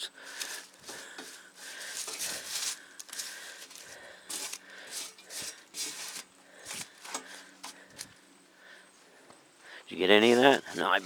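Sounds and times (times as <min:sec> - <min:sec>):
grass rustling and tearing: 0:00.0 - 0:08.1, 0:10.3 - 0:11.0.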